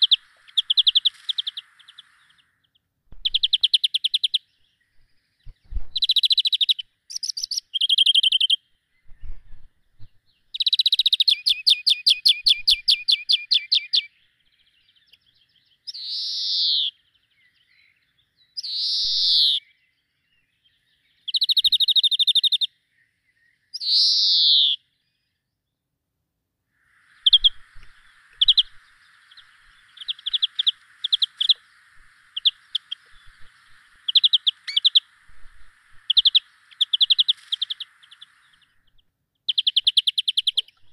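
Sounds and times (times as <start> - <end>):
steady hiss: 0.0 - 7.6, 26.7 - 40.9
bird chirps: 0.0 - 25.8, 26.8 - 40.9
songbirds singing: 0.0 - 26.0, 26.8 - 40.9.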